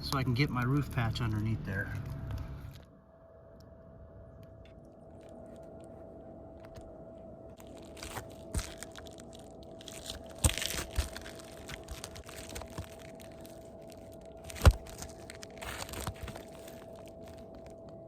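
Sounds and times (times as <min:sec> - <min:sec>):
shingles crackling and crunching: 0:04.6 - 0:18.0.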